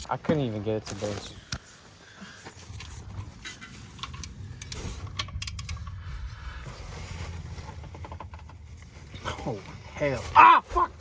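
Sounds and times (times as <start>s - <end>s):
low steady rumble: 2.6s - 10.2s.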